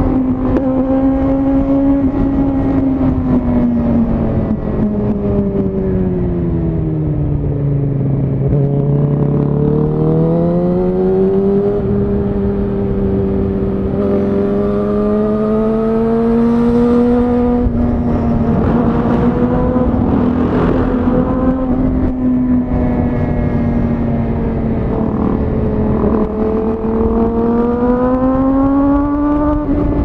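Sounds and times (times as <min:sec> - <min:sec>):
motorcycle engine revving: 0:08.4 - 0:30.0.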